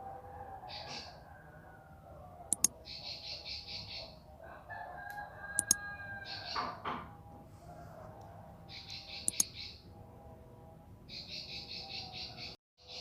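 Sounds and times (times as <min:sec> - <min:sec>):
sharp clicks: 0:02.5 - 0:02.8, 0:05.6 - 0:05.8, 0:09.3 - 0:09.5
bird buzzy chirping trill: 0:02.5 - 0:04.0, 0:05.6 - 0:05.8, 0:08.7 - 0:09.8.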